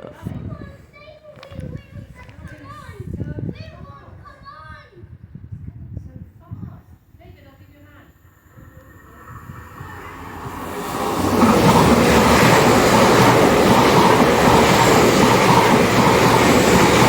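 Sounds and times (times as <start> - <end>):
train passing: 7.9 - 17.0.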